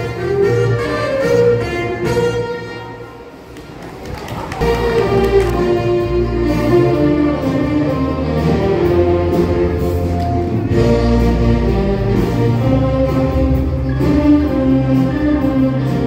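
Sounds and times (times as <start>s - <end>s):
band music with bass line: 4.6s - 16.0s.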